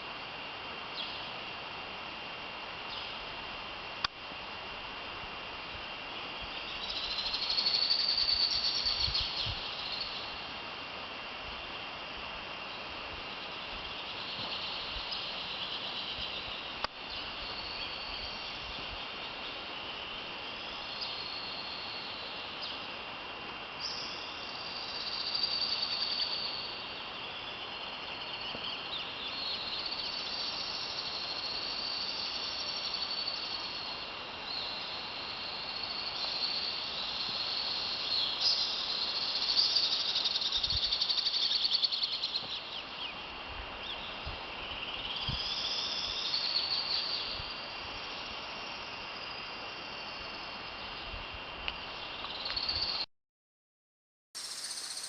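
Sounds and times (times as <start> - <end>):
insects chirping: 0.0 - 53.1, 54.4 - 55.0
steady background hiss: 0.0 - 53.1, 54.4 - 55.0
birds singing: 6.4 - 10.4, 54.4 - 55.0.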